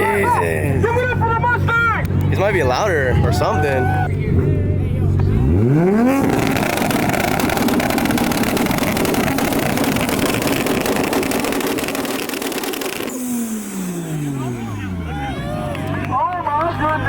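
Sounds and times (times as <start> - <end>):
car engine revving high: 5.1 - 17.0.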